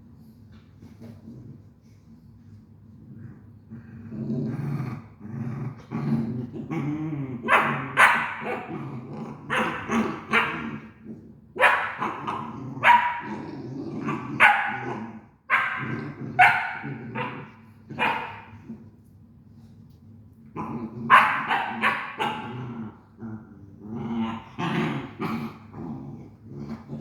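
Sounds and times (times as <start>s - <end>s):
dog growling: 3.0s - 19.0s, 20.5s - 27.0s
dog barking loudly: 7.5s - 8.7s, 11.6s - 12.2s, 12.8s - 13.3s, 14.4s - 14.9s, 15.5s - 18.4s, 21.1s - 22.5s.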